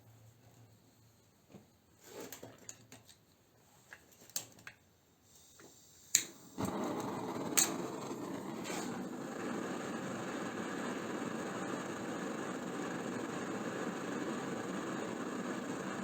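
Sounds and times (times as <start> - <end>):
gas torch flame hissing: 5.3 - 16.0
sharp igniter click: 6.1 - 15.6.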